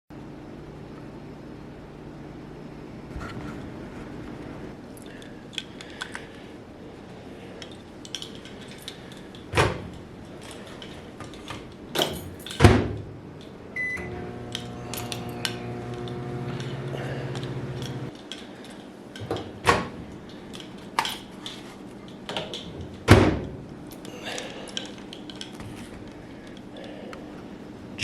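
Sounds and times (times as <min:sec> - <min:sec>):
microwave oven humming: 0:11.7 - 0:18.1
keypad beep: 0:13.8 - 0:14.1.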